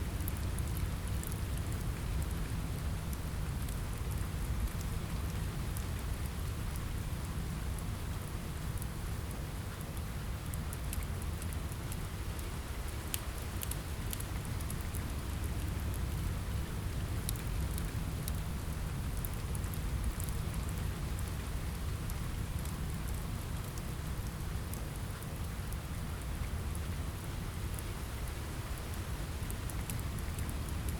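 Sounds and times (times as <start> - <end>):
rain on a window: 0.0 - 30.9.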